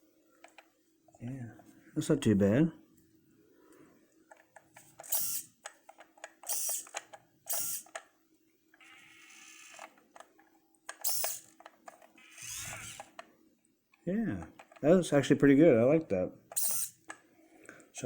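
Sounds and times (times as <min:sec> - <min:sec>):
faint steady whirr: 0:00.0 - 0:18.0
model parts clicking and scraping: 0:04.3 - 0:08.0, 0:08.8 - 0:10.3, 0:10.9 - 0:13.2.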